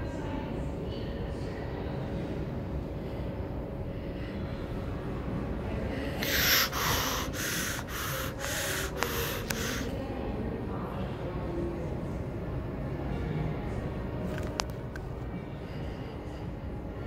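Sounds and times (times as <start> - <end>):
train rumbling in tunnel: 1.7 - 14.1
loud rasping hisses: 6.2 - 9.9.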